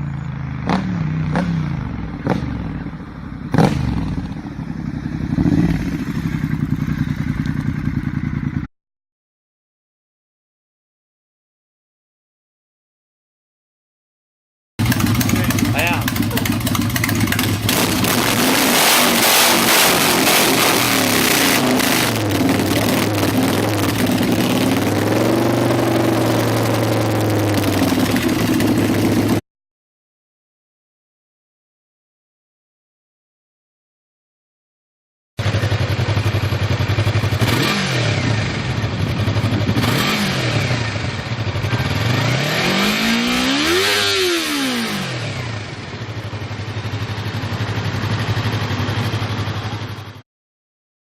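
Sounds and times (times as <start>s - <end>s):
motorcycle engine idling: 0.0s - 8.7s, 14.8s - 29.4s, 35.4s - 43.5s, 45.2s - 50.2s
motorcycle engine rev blip: 0.0s - 8.7s, 14.8s - 24.9s.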